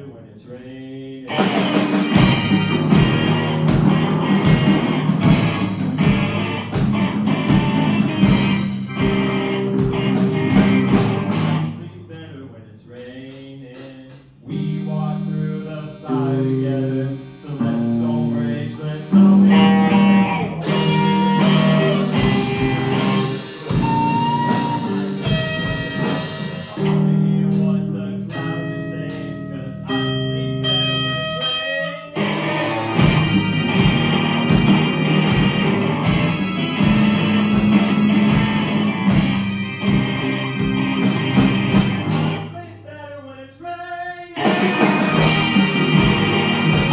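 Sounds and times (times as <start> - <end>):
drum hits: 1.3 - 11.7, 32.6 - 42.5, 44.4 - 46.9
melodic guitar lines: 1.3 - 11.8, 19.2 - 27.4, 28.3 - 42.6, 44.4 - 46.9
guitar chords: 1.3 - 11.9, 14.5 - 42.9, 44.4 - 46.9
bass line: 1.3 - 12.2, 14.4 - 43.0, 44.4 - 46.9.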